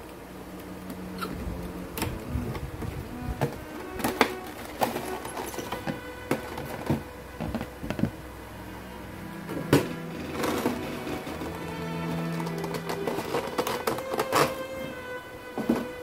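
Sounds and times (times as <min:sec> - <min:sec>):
quiet background music: 0:00.0 - 0:16.0
packaging clicks and knocks: 0:03.4 - 0:08.2, 0:09.7 - 0:16.0.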